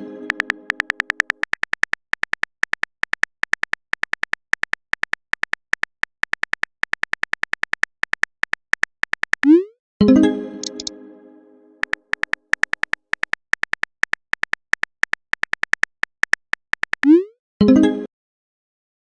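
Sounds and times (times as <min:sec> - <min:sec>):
phone keyboard clicking beeps: 0:00.3 - 0:09.7, 0:10.6 - 0:10.9, 0:11.8 - 0:17.3.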